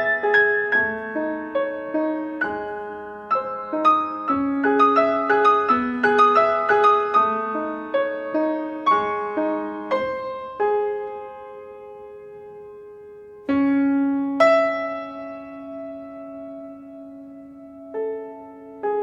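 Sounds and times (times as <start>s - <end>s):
solo piano melody: 0.0s - 19.0s.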